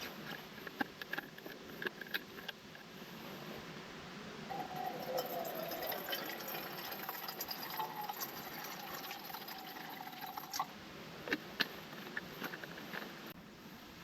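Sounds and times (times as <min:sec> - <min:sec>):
liquid pouring into container: 0:04.5 - 0:10.7.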